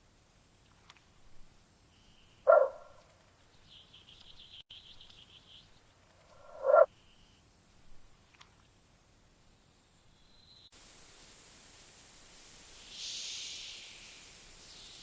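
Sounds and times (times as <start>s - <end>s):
frog croaking: 2.5s - 3.0s, 6.3s - 6.9s.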